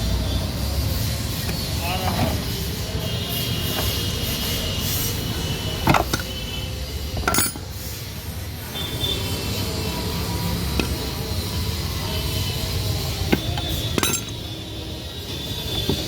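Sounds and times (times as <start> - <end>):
metal tools clinking: 7.2 - 7.8, 13.3 - 14.6.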